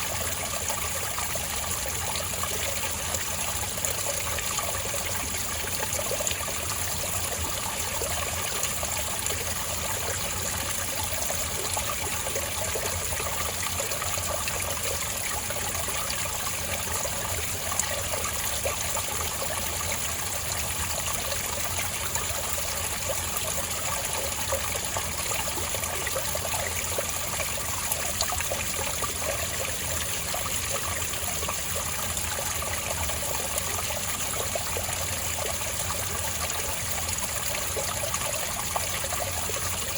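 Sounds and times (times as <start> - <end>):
water trickling over rocks: 0.0 - 39.9.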